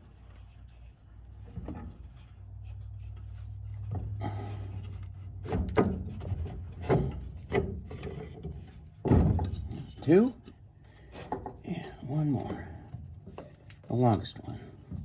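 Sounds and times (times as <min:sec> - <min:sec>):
wood knocking: 0:05.4 - 0:09.9.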